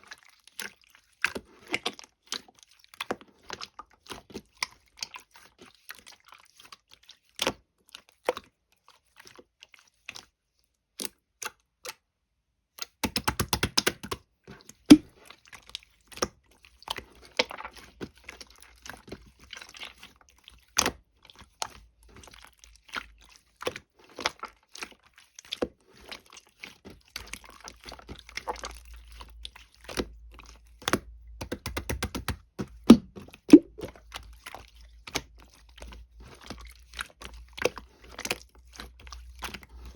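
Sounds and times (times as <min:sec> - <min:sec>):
slime clicking and popping: 0:12.8 - 0:14.2, 0:30.8 - 0:33.9.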